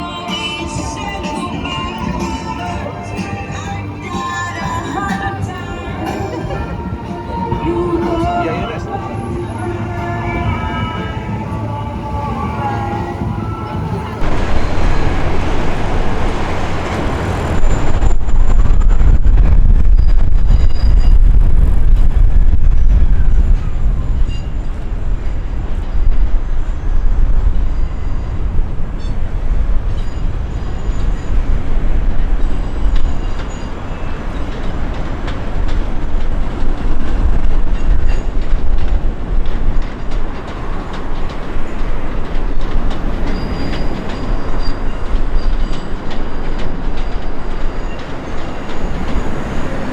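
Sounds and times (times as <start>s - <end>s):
train wheels rumbling on track: 0.0s - 49.9s
wheel squeal: 12.7s - 21.5s, 23.2s - 38.6s, 39.8s - 49.9s
clatter over rail joints: 14.2s - 49.9s.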